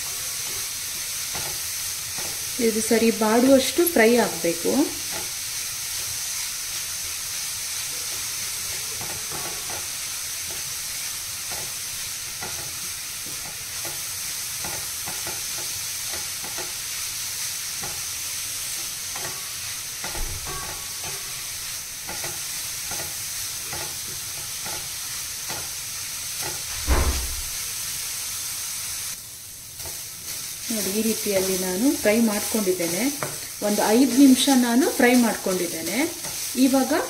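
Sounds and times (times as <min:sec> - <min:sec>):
carrots sizzling in a pan: 0:00.0 - 0:37.0
wooden spatula scraping a pan: 0:08.0 - 0:16.9
loud thump: 0:26.7 - 0:27.6.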